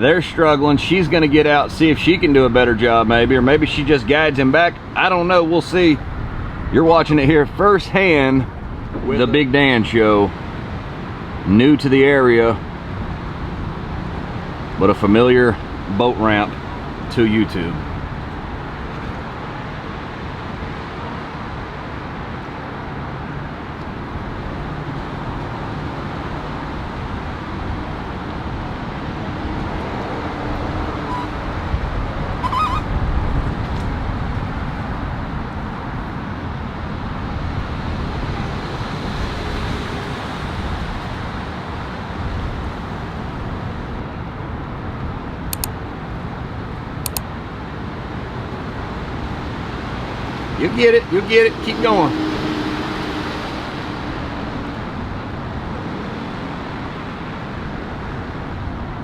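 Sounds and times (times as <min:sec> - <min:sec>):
outdoor background noise: 0:00.0 - 0:59.0
short sharp clicks: 0:45.5 - 0:45.7, 0:47.0 - 0:47.3.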